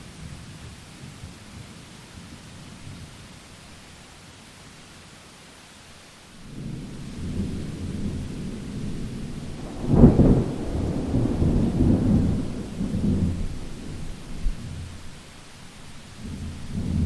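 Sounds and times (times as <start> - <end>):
steady rain: 0.0 - 17.0
thunder rumbling and cracking: 6.5 - 17.0.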